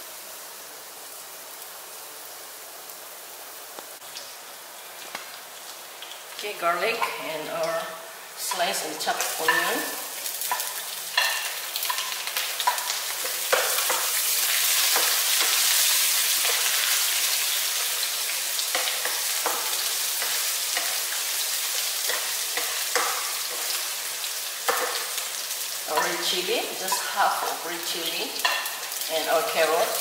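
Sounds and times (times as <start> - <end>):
garlic and onion sizzling in oil: 0.0 - 30.0
spatula scraping and tapping pan: 8.5 - 14.2, 18.6 - 23.8, 24.6 - 25.2, 25.9 - 27.6.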